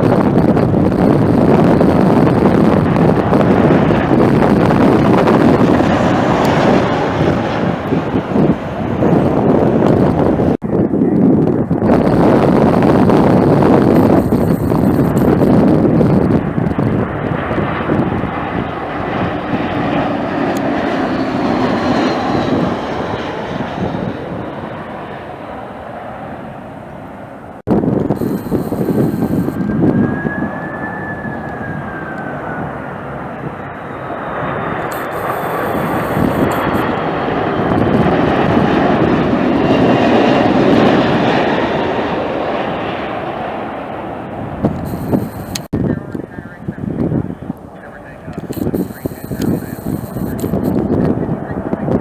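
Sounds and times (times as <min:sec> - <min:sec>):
jet airliner engines passing: 0:00.0 - 0:52.0
wind buffeting microphone: 0:00.0 - 0:52.0.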